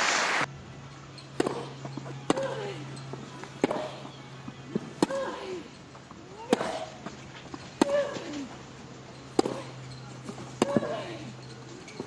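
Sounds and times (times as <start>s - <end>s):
tennis ball struck with rackets: 1.3s - 2.7s, 3.4s - 4.1s, 4.7s - 5.4s, 6.4s - 7.2s, 9.3s - 11.0s.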